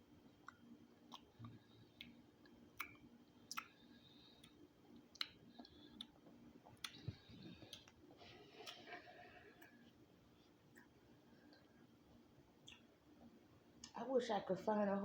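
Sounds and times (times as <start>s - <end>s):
person chewing food: 0.3s - 11.8s.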